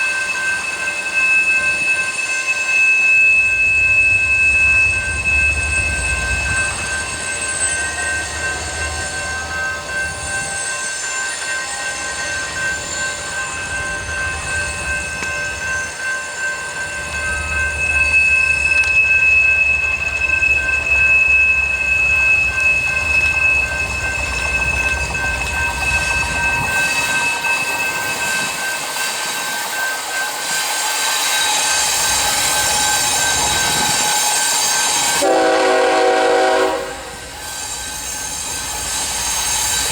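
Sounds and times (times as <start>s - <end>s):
rumble of freight cars: 0.0s - 39.9s
train wheels squealing: 0.0s - 39.9s.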